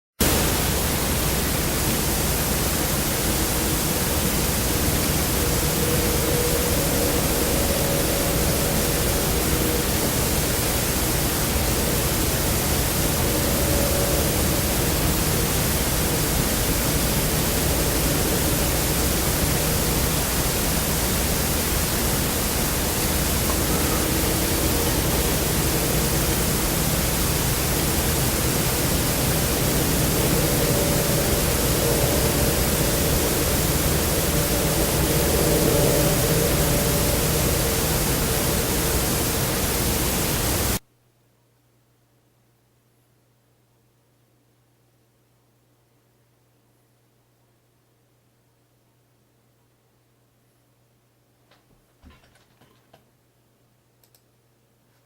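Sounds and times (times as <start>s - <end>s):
steady loud hiss: 0.2s - 40.9s
faint wavering metallic whine: 0.4s - 40.8s.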